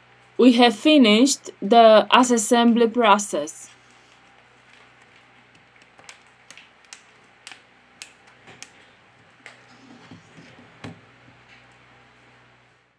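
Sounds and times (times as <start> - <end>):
sharp clicks and taps: 4.7 - 8.8.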